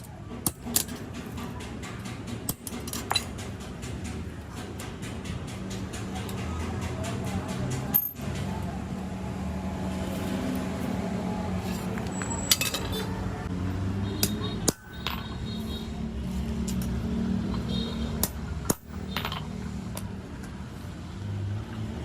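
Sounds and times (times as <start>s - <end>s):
tools clinking on metal: 0.0s - 8.5s, 11.6s - 13.2s, 16.6s - 20.1s.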